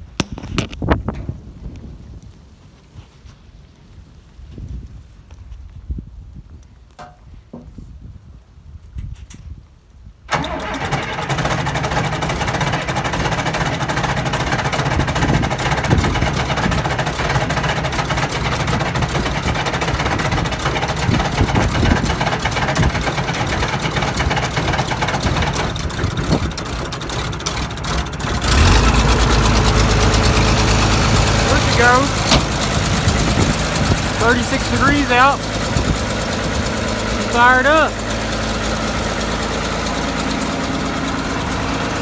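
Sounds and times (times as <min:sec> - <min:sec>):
starter motor cranking: 0:10.3 - 0:42.0
tractor diesel engine running: 0:10.3 - 0:42.0.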